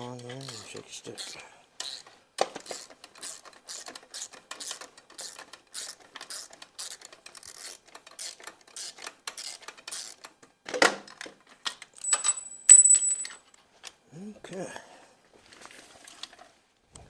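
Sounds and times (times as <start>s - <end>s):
ratchet wrench clicking: 1.2s - 2.0s
small metal part clinking: 12.0s - 13.5s.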